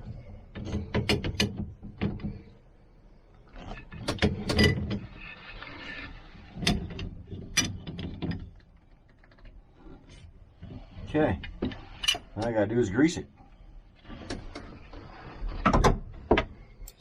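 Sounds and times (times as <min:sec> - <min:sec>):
wrench clicking and knocking on nut: 0:00.6 - 0:02.3.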